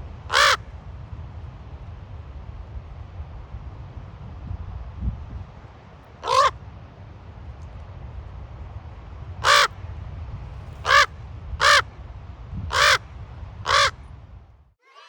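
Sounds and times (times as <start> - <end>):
steady low rumble: 0.0 - 14.8
raven croaking: 0.3 - 0.6, 6.2 - 6.5, 10.8 - 11.8.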